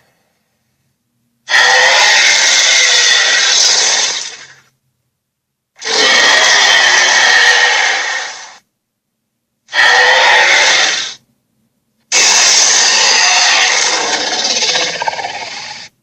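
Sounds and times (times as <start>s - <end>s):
dragon roaring: 1.5s - 4.5s, 5.8s - 8.6s, 9.7s - 11.2s, 12.1s - 15.9s.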